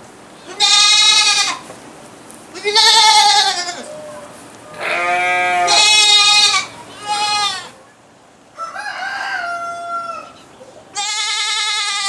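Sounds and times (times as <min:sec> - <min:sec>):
goats bleating: 0:00.5 - 0:01.6, 0:02.6 - 0:03.9, 0:04.7 - 0:07.8, 0:11.0 - 0:12.0.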